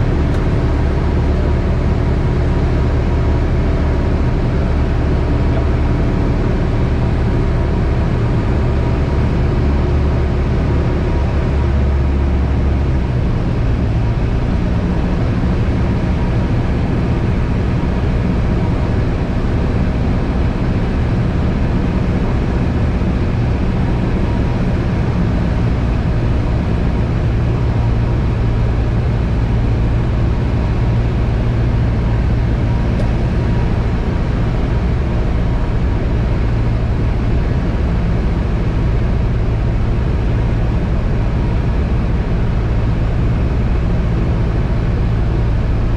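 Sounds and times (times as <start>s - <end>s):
propeller plane engine droning: 0.0s - 45.9s.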